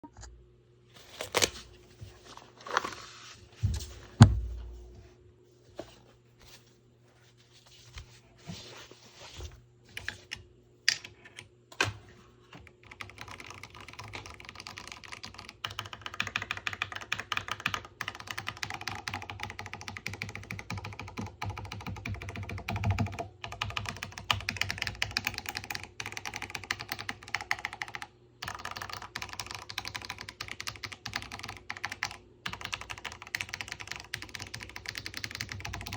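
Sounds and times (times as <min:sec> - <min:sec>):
typing on mechanical keyboard: 0:12.6 - 0:35.9.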